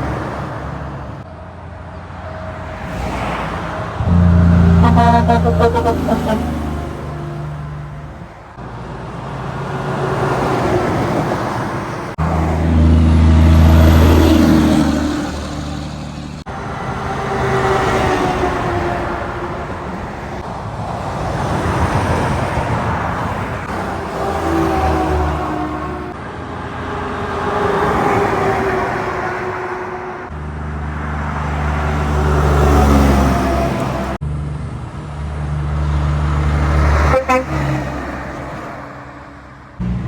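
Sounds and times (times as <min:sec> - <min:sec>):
diesel truck drone: 0:00.0 - 0:21.1, 0:30.1 - 0:40.0
highway traffic passing: 0:00.0 - 0:40.0.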